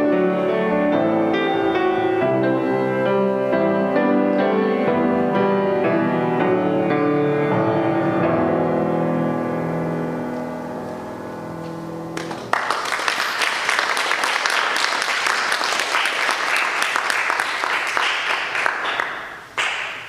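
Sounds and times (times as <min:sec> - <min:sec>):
piano chords: 0:00.0 - 0:15.6.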